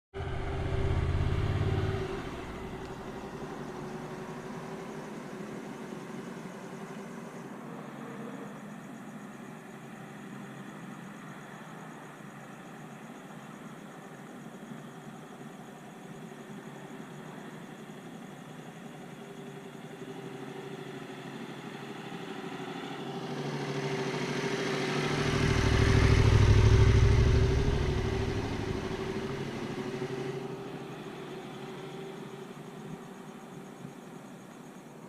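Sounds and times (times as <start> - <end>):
motor vehicle passing by: 0.2 - 8.6, 19.6 - 32.7.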